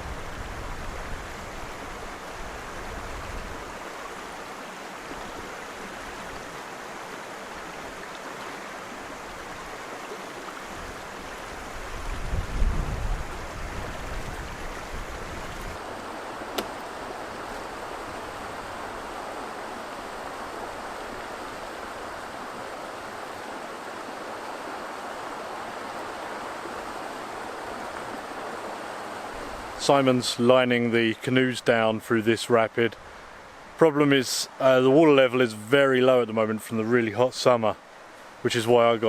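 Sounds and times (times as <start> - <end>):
river rapid rushing: 0.0 - 39.0
sharp click: 16.6 - 16.8.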